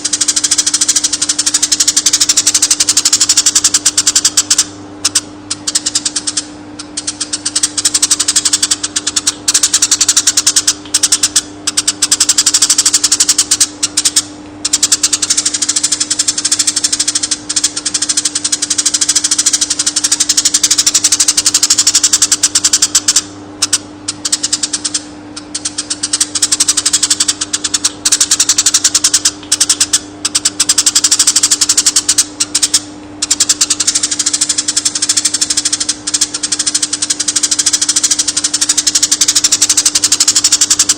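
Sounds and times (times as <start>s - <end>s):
low electrical hum: 0.0s - 40.9s
songbird buzzing rattling chatter: 0.0s - 40.9s.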